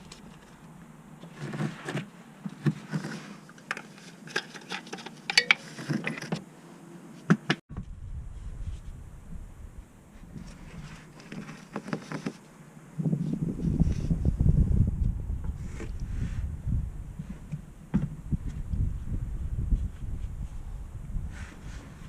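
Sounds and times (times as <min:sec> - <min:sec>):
hand tools clinking: 0:03.7 - 0:06.3
low rumble: 0:07.7 - 0:10.8, 0:12.9 - 0:22.0.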